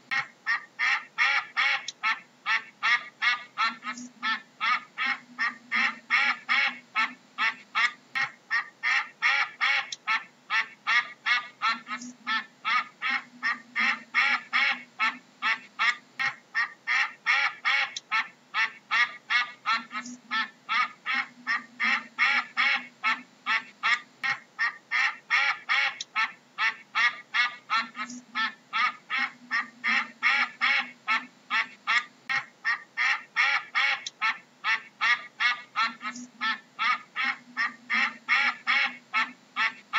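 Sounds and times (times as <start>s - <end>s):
ducks quacking: 0.0s - 39.9s.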